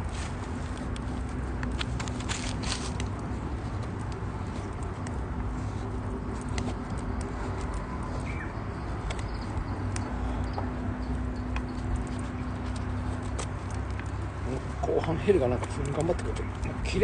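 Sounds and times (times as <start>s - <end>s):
campfire crackling and popping: 0.6s - 17.0s.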